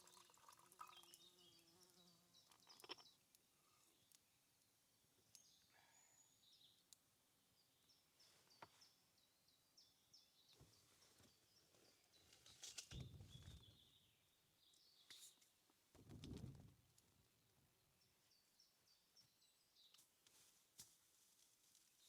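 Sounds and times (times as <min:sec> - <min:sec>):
bird chirping: 0:00.8 - 0:03.2, 0:07.6 - 0:15.4
rustle: 0:19.9 - 0:22.0.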